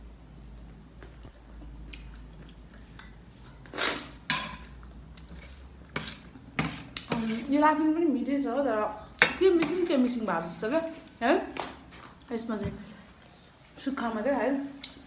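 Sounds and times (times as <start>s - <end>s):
person chewing: 1.4s - 7.1s.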